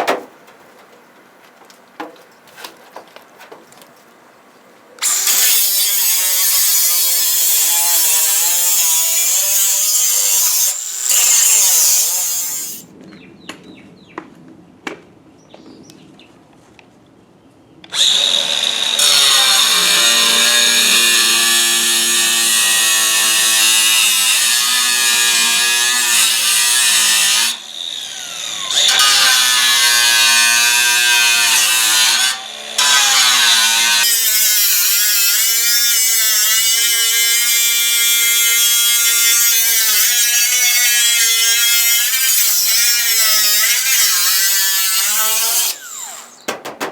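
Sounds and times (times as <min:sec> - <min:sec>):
power tool cutting sheet metal: 0:05.0 - 0:12.9, 0:17.9 - 0:46.5.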